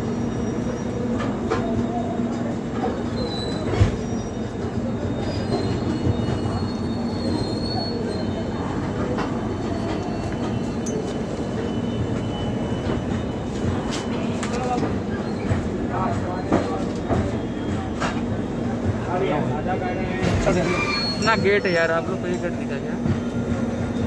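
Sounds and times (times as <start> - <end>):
train wheels rumbling on rail: 0.0 - 24.0
thin high squeal: 20.5 - 21.8.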